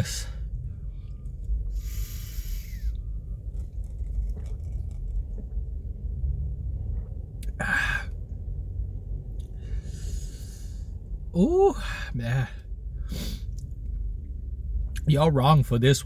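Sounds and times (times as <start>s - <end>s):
low rumble: 0.0s - 16.0s
man breathing hard: 1.7s - 3.0s, 7.6s - 8.1s, 9.6s - 11.0s.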